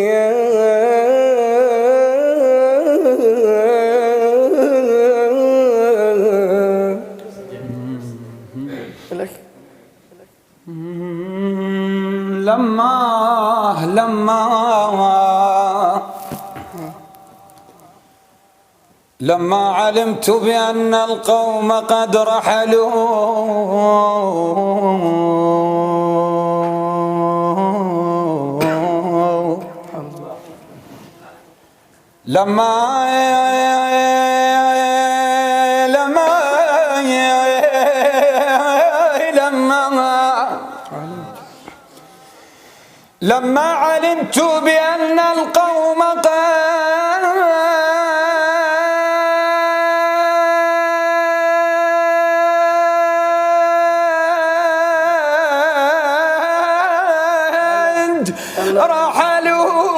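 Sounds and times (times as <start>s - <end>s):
man chanting unaccompanied: 0.0s - 9.0s, 10.6s - 17.2s, 19.2s - 31.4s, 32.2s - 41.8s, 43.2s - 59.9s.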